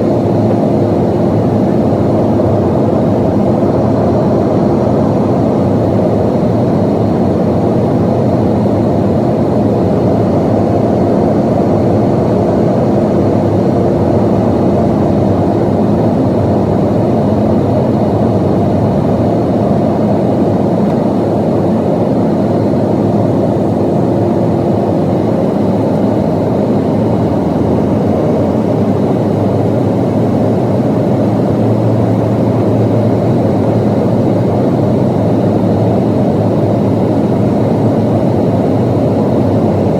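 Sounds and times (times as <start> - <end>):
airplane cabin roar: 0.0 - 39.9
deep hum: 10.2 - 20.2, 26.4 - 37.9.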